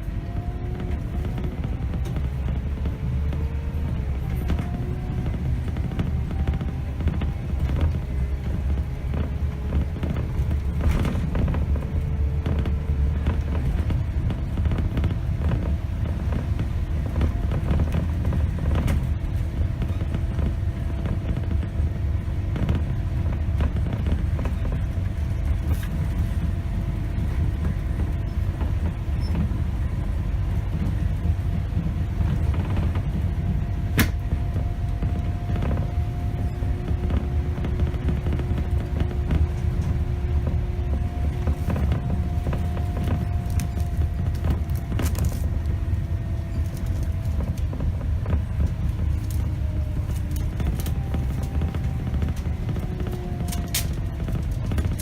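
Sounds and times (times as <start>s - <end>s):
bus body creaks and rattles: 0.0s - 55.0s
bus diesel engine and road rumble: 0.0s - 55.0s
faint whine shifting in pitch: 0.0s - 55.0s.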